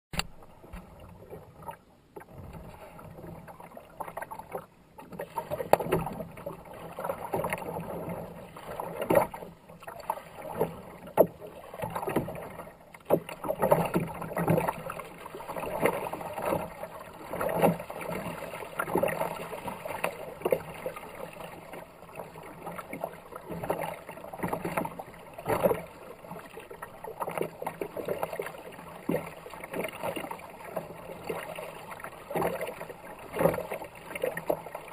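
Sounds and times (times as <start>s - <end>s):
kayak paddle splashing: 0.1s - 34.9s.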